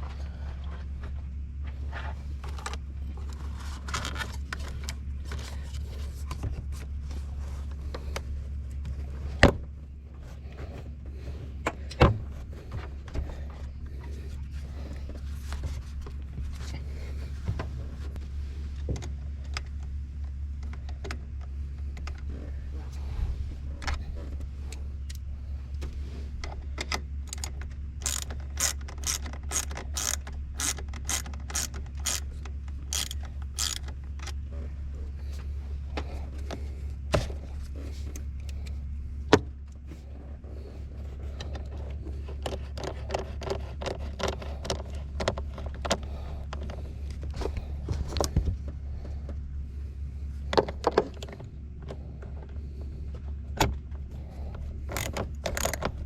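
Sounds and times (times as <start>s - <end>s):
engine running with low drone: 0.0s - 56.0s
regular clicks: 26.9s - 34.4s.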